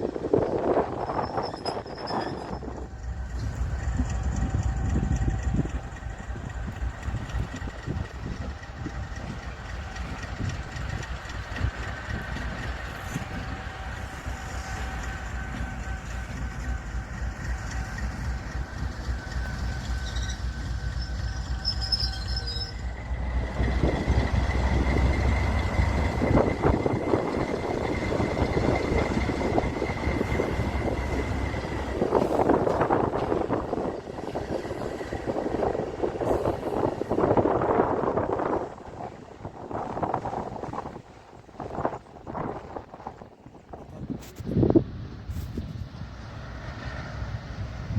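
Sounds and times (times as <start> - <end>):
locomotive rumble: 0.0 - 47.9
train wheels clattering: 0.2 - 41.9
high wheel squeal: 0.3 - 8.4, 10.2 - 37.9.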